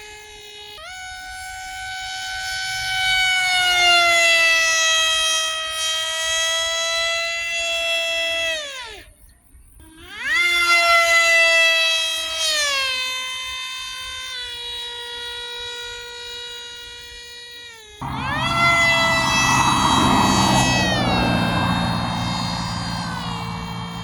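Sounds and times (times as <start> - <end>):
electric motor whining: 18.0 - 24.0
rushing noise: 18.0 - 24.0.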